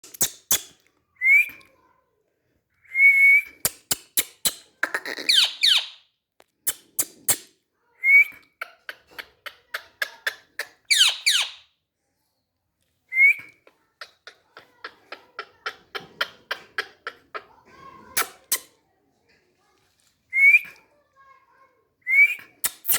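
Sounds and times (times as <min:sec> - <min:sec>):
parrot whistles and chirps: 0:05.3 - 0:06.0, 0:10.9 - 0:11.6.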